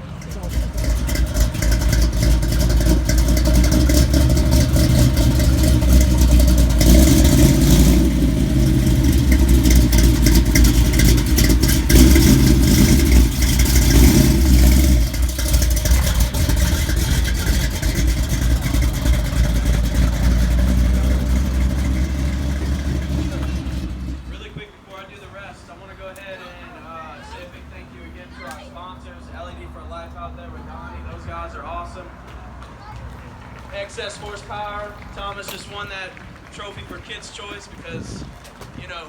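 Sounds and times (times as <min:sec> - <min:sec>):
car engine revving: 0:00.0 - 0:24.6.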